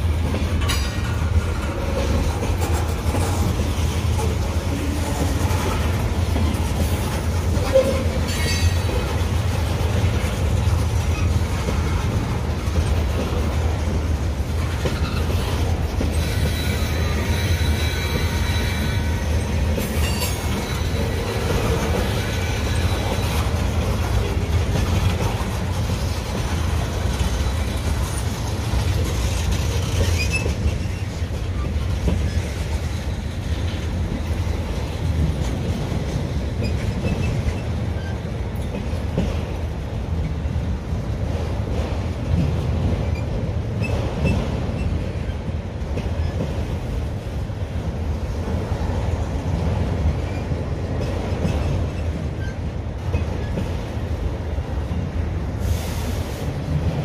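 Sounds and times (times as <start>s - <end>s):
freight train wheels rumbling: 0.0s - 57.0s
high wheel squeaks: 6.8s - 9.2s, 14.8s - 24.2s, 27.0s - 33.2s.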